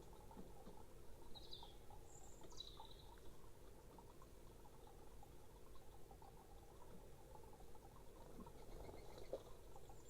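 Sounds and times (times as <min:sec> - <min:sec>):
faint bird chirps: 0:01.2 - 0:03.3.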